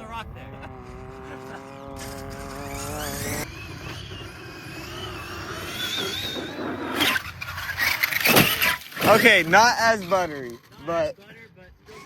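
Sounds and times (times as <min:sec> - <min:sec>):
electric motor whining: 0:00.7 - 0:10.8
toy truck landing thump: 0:08.1 - 0:09.2.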